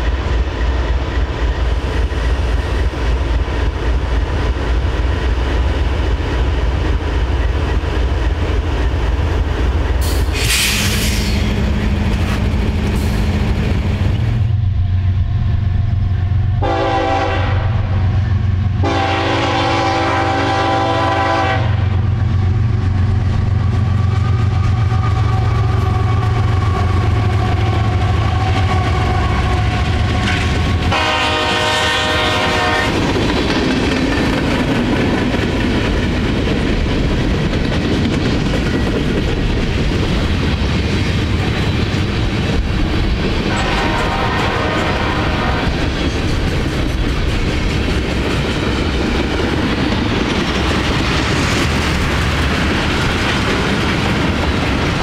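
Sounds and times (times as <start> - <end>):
diesel locomotive engine: 0.0 - 55.0
train horn blasts: 16.6 - 18.2, 18.8 - 22.0, 28.2 - 33.1, 43.5 - 45.8
freight cars clacking on rails: 22.4 - 55.0.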